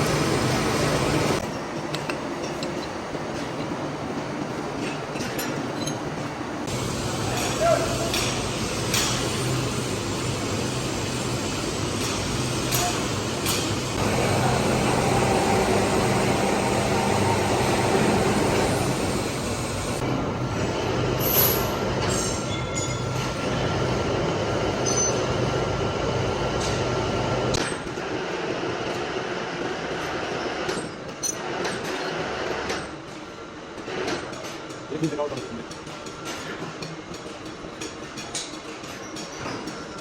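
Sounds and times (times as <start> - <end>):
metal lathe humming and whining: 8.4 - 27.5.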